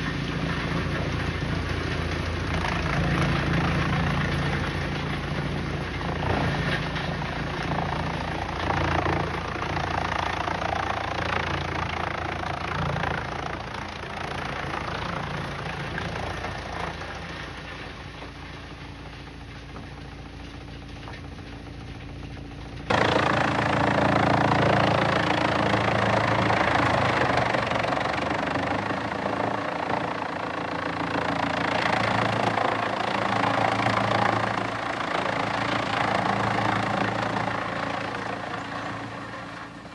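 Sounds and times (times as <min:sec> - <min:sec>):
heavy machinery running: 0:22.9 - 0:39.9.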